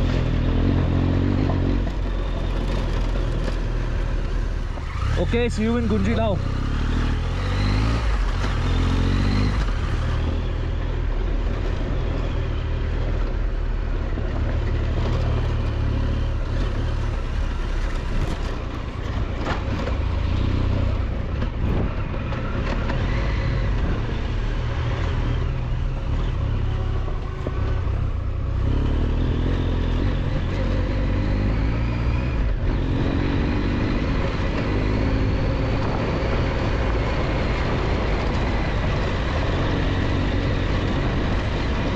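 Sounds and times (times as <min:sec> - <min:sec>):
motorcycle engine revving: 0:00.0 - 0:41.9
wind noise: 0:20.8 - 0:25.7, 0:30.0 - 0:41.9.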